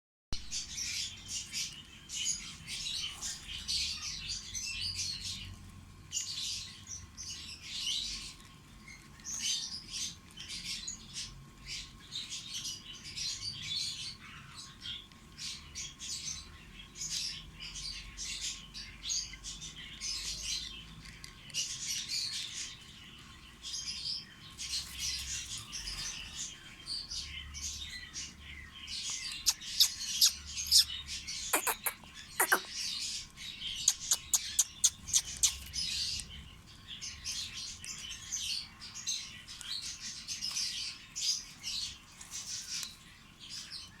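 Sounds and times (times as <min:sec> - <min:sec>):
parrots chirping and chattering: 0:00.4 - 0:44.0
sharp loud parrot calls: 0:29.8 - 0:32.8.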